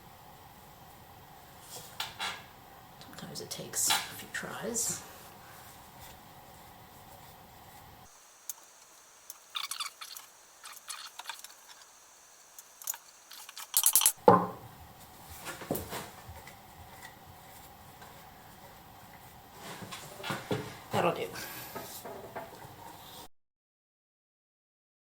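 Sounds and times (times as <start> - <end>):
wood and metal knocking: 14.2 - 14.7.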